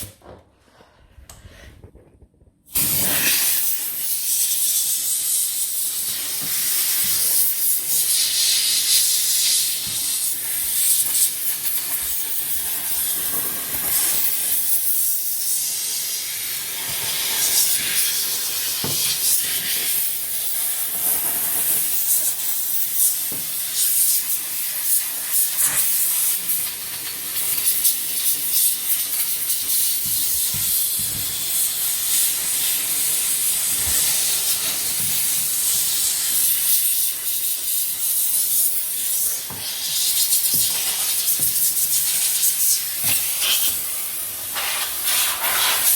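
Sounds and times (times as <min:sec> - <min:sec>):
steam cleaner hissing: 0:02.7 - 0:45.9.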